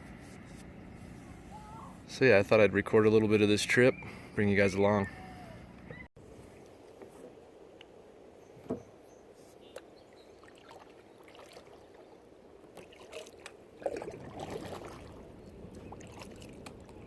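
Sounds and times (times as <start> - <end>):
kayak paddle splashing water: 10.4 - 17.0.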